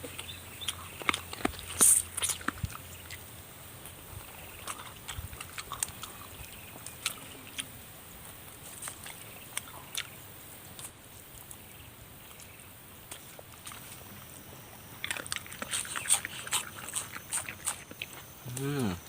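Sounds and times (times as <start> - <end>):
wet crunching while eating: 0.0 - 7.7, 12.3 - 19.0
background hiss: 0.0 - 19.0.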